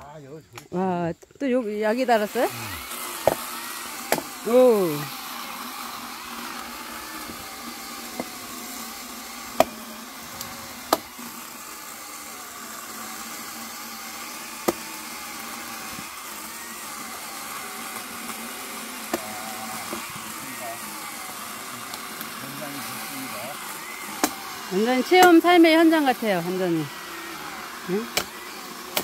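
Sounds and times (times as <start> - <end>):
electric chainsaw cutting logs: 0.5 - 29.0
sharp knocks: 3.2 - 3.5.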